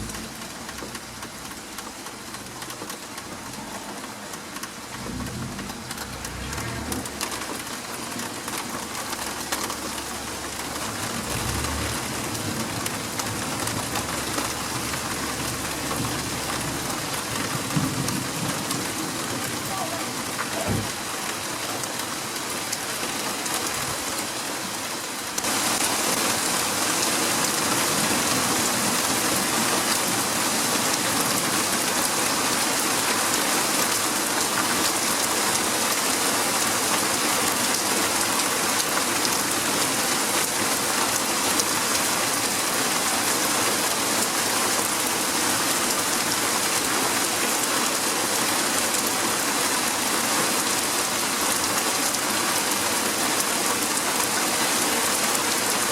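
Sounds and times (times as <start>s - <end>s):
heavy rain splashing: 0.0s - 55.9s.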